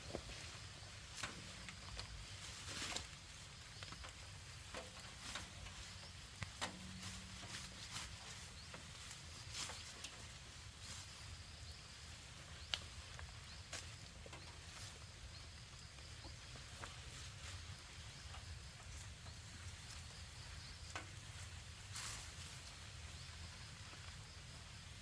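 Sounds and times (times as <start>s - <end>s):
short rustle: 0.0s - 11.5s, 20.9s - 23.1s.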